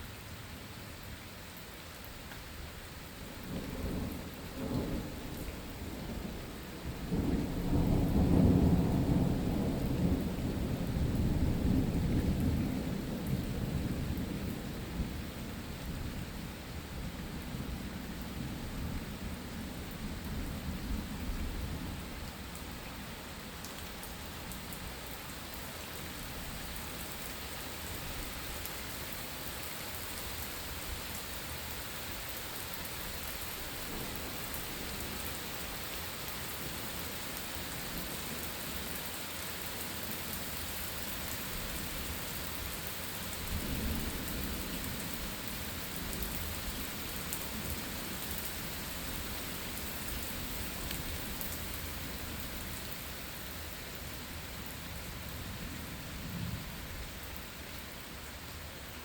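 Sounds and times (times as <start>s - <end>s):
steady rain falling: 0.0s - 59.0s
thunder rumble: 3.4s - 15.2s.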